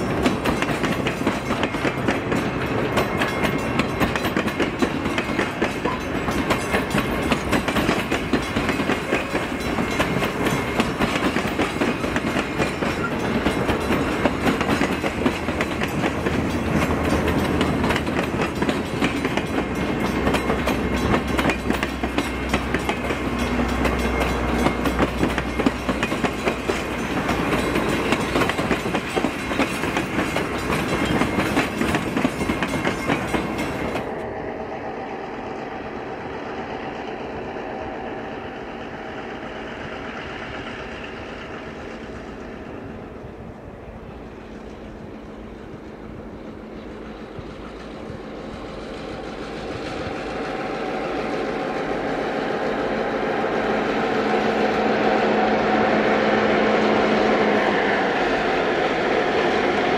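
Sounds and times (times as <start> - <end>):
wheels clicking over rails: 0.0 - 34.2
train rumbling on track: 0.0 - 59.9.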